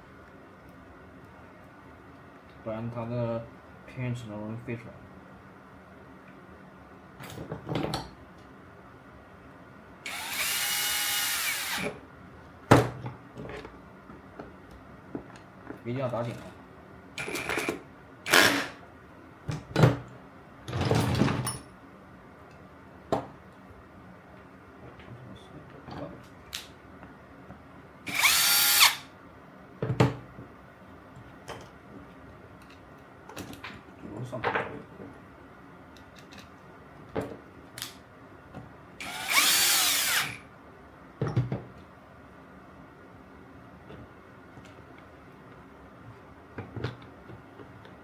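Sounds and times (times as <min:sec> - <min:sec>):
electric power driver whirring: 0:10.1 - 0:11.9, 0:28.1 - 0:29.1, 0:39.0 - 0:40.4.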